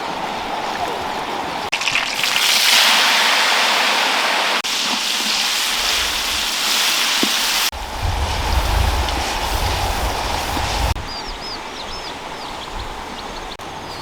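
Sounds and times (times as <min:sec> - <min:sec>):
steady hissing noise: 0:03.5 - 0:14.0.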